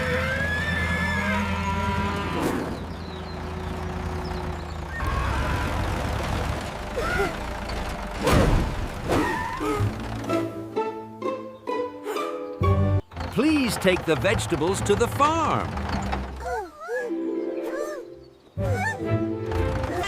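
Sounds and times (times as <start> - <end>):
farm animal calls: 0.0 - 5.9
low engine-like hum: 0.0 - 10.6.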